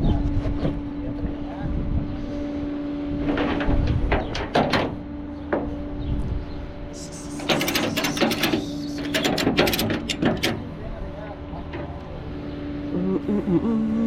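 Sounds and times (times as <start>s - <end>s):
steady mechanical hum: 0.0s - 14.0s
metallic clanks and knocks: 7.4s - 10.7s.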